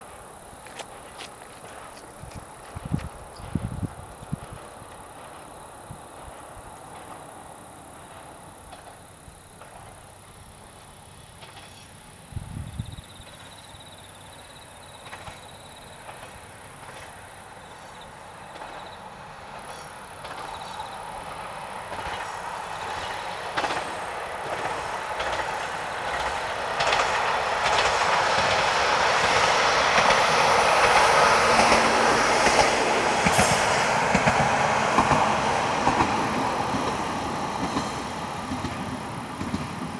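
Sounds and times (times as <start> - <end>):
diesel railcar rumbling: 0.0 - 39.9
wheels clicking over rail joints: 0.0 - 39.9.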